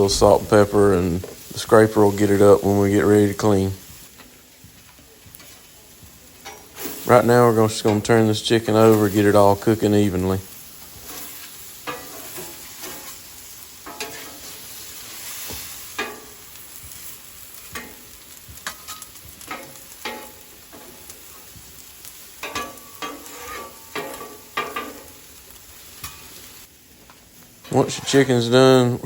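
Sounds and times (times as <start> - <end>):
chicken sizzling on griddle: 0.0 - 29.0
metal spatula scraping griddle: 10.9 - 21.4, 22.3 - 25.2, 27.6 - 28.5.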